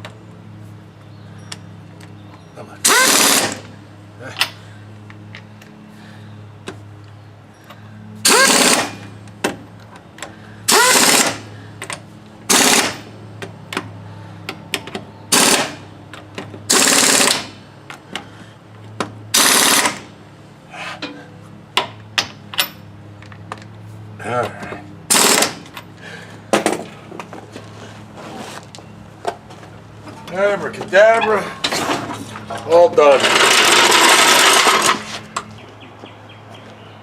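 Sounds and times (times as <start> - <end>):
impact wrench hammering: 8.2 - 9.0, 10.7 - 11.4.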